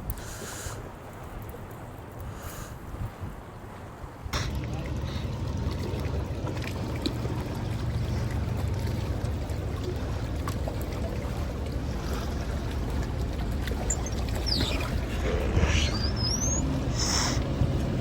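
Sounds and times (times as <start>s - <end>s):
faint ticks: 0.0s - 0.5s
boat engine low rumble: 0.0s - 18.0s
water around hull: 0.0s - 18.0s.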